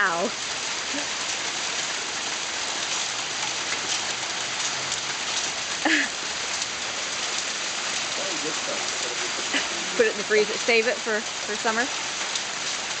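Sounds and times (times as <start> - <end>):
hail pelting down: 0.0 - 13.0.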